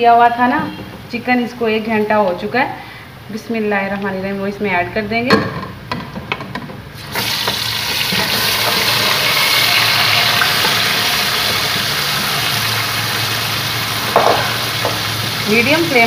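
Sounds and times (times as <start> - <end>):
chicken sizzling in oil: 7.0 - 16.0.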